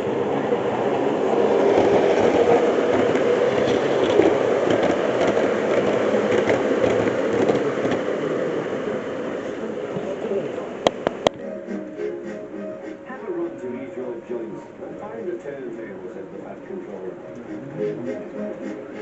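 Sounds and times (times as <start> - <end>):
model train rumbling on track: 0.0 - 19.0
clicks over rail joints: 1.8 - 8.1.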